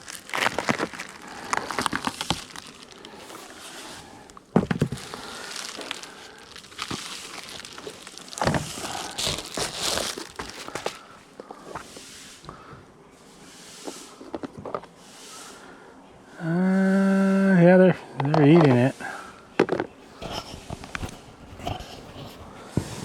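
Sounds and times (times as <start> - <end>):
crinkly wrapping crumpled: 0.0 - 12.6.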